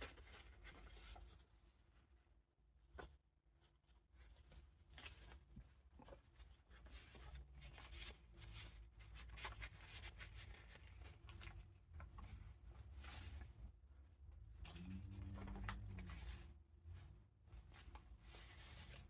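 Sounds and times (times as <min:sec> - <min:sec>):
paper rustling and crinkling: 0:00.0 - 0:01.5, 0:04.2 - 0:13.6, 0:14.7 - 0:19.0
low steady hum: 0:11.4 - 0:18.3.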